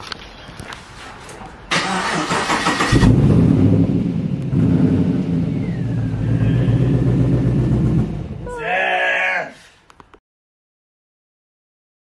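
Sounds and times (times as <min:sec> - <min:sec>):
car engine starting and revving: 0:01.7 - 0:08.5.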